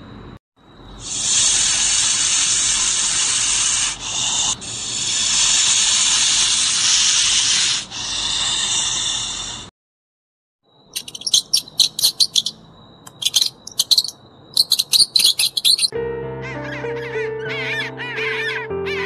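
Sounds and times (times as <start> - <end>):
rattlesnake tail rattling: 1.0 - 9.6, 11.0 - 15.9.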